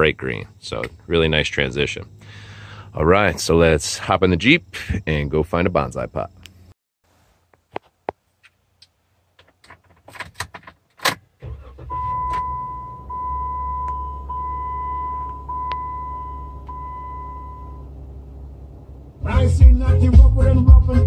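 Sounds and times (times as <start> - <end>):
car engine starting and idling: 10.2 - 20.8
dashboard warning chime: 11.8 - 18.0.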